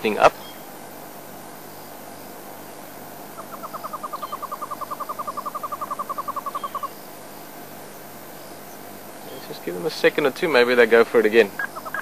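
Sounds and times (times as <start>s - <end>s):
hornbill clucking call: 3.2s - 7.1s, 11.4s - 12.0s.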